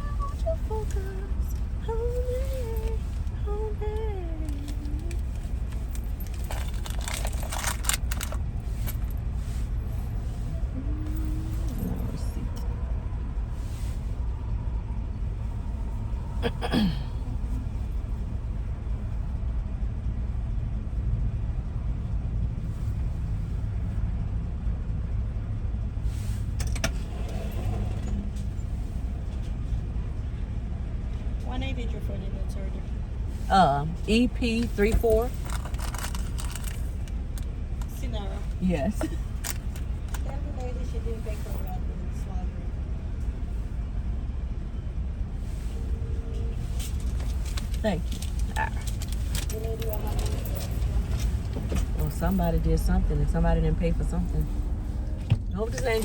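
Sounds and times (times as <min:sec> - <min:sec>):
car engine idling: 0:00.0 - 0:56.0
light clicks and rattles: 0:00.7 - 0:09.7, 0:34.5 - 0:41.7, 0:46.6 - 0:53.0.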